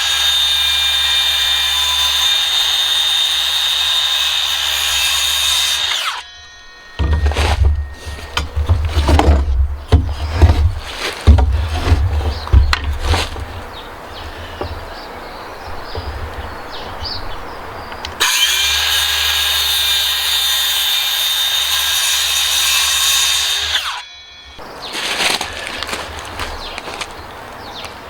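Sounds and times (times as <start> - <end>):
electric saw motor whine: 0.0 - 10.6, 18.2 - 25.1
knocks and scraping on wood: 6.9 - 17.2.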